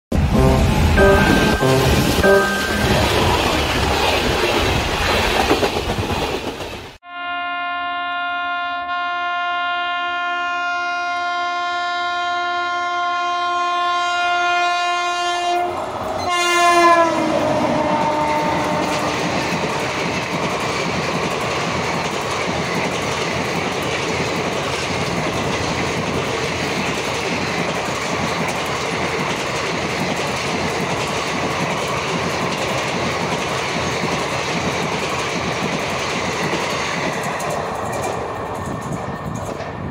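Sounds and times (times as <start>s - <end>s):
locomotive air horn blast: 0.1s - 3.5s, 7.0s - 19.9s
train wheels clattering on rail joints: 2.9s - 7.0s, 17.7s - 39.9s.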